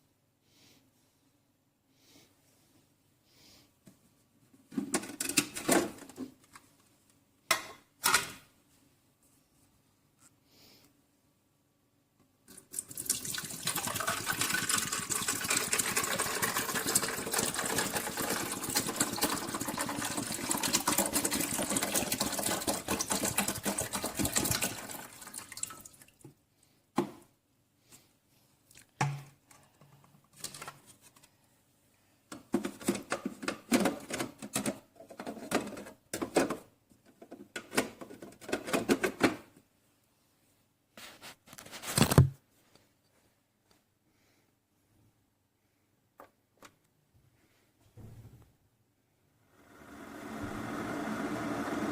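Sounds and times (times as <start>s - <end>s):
coffee maker sputters and drips: 12.5s - 25.8s
coffee maker water streaming: 12.5s - 25.9s, 49.6s - 51.9s.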